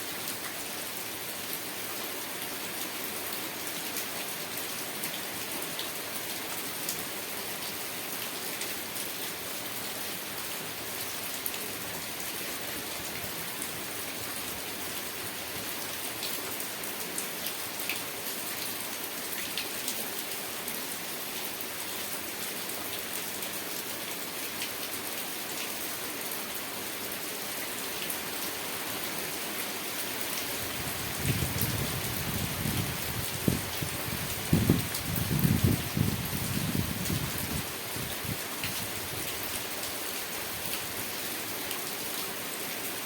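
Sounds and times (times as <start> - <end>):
steady rain hiss: 0.0 - 43.0.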